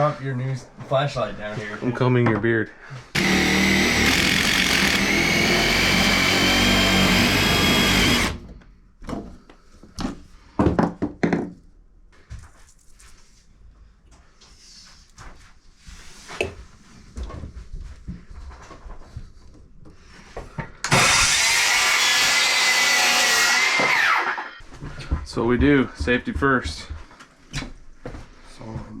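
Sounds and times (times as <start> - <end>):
power drill running: 3.1 - 8.5, 20.9 - 24.6.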